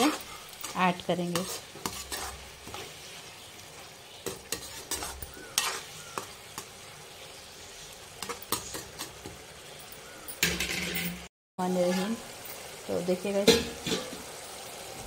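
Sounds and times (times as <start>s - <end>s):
spatula scraping and tapping pan: 0.0s - 6.8s, 8.2s - 11.2s, 13.4s - 14.3s
meat sizzling in a pan: 0.0s - 10.6s, 11.6s - 15.0s.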